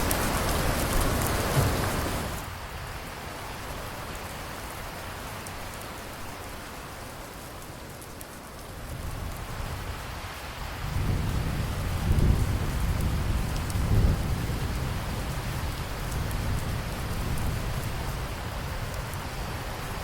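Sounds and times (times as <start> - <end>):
rain falling: 0.0 - 20.0
low thunder rumble: 10.8 - 19.4.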